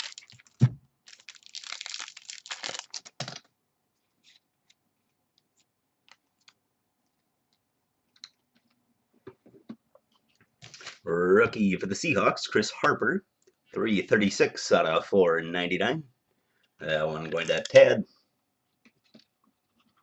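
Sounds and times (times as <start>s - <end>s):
wrapper tearing and crinkling: 0.0s - 3.4s.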